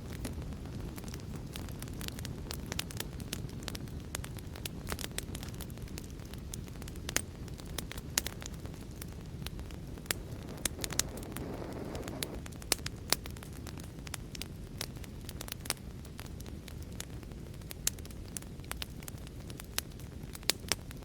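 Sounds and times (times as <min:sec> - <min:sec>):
wood fire crackling and popping: 0:00.0 - 0:21.0
soft hiss: 0:08.0 - 0:12.8.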